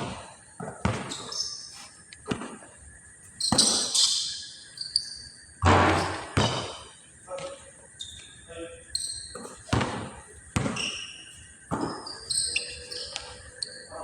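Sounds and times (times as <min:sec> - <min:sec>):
basketball bouncing on court: 0:00.0 - 0:01.5, 0:03.4 - 0:04.2, 0:05.6 - 0:07.5, 0:09.2 - 0:13.3.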